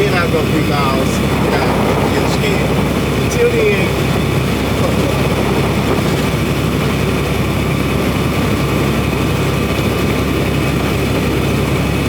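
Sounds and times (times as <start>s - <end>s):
diesel truck engine running: 0.0s - 12.0s
road noise: 0.0s - 12.0s.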